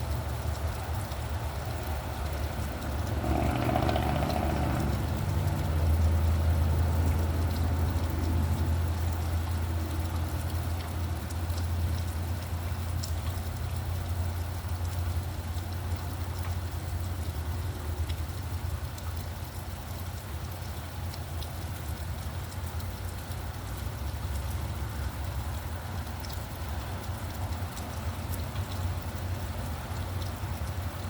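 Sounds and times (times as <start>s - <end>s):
traffic engine rumble: 0.0s - 19.6s
vehicle passing on wet road: 0.0s - 20.2s
raindrop ticks: 0.0s - 31.0s.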